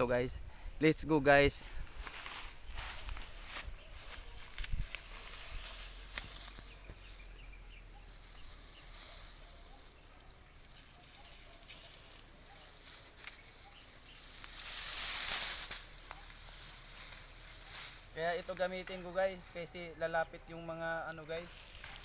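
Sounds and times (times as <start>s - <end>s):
rustling: 1.7s - 19.7s
high-pitched insect buzz: 2.0s - 18.9s.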